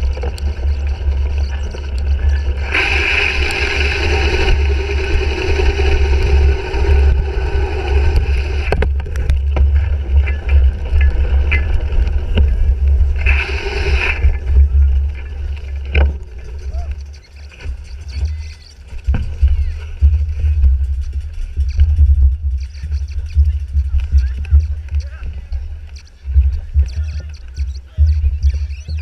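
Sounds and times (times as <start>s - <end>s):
bicycle rumble on rough ground: 0.0s - 29.0s
wind buffeting microphone: 0.0s - 29.0s
loud rushing noise: 1.8s - 16.4s.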